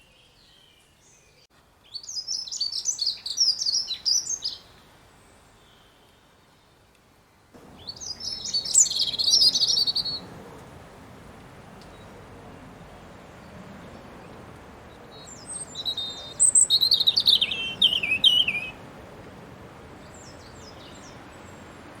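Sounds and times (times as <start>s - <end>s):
faint background hiss: 0.0s - 22.0s
songbird warbling: 7.6s - 21.6s.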